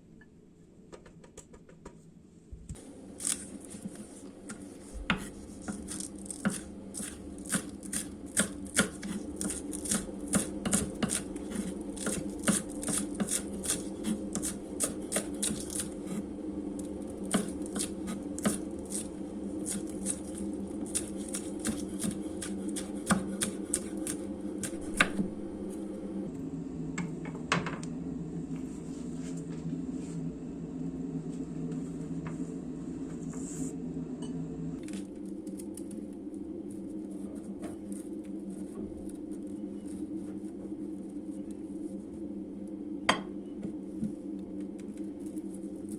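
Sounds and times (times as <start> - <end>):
steady low hum: 2.1 - 45.9
knife chopping on cutting board: 3.2 - 16.2, 17.2 - 25.2.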